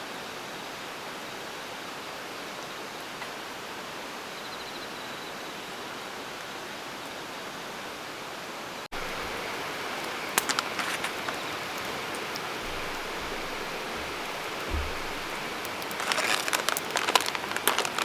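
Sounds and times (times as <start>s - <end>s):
campfire pops and crackles: 8.9s - 18.0s
rain hissing: 8.9s - 18.0s.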